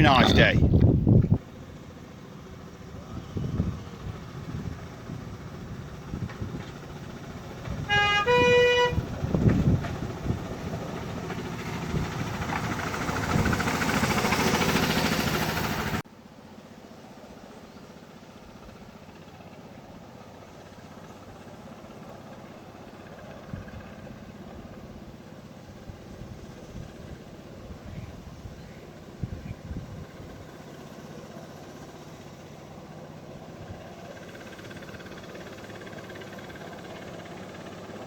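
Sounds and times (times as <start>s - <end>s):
locomotive engine approaching: 0.0s - 38.0s
locomotive horn toots: 7.7s - 9.3s.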